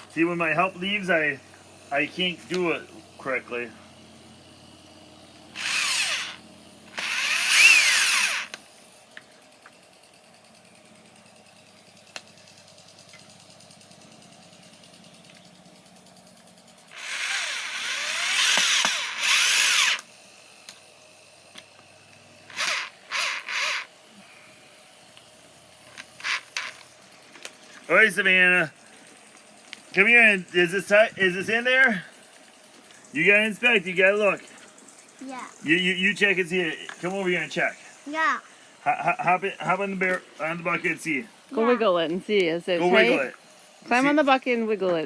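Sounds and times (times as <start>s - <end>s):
power drill driving screws: 5.5s - 8.6s, 16.9s - 20.1s, 22.5s - 23.9s, 25.9s - 26.9s.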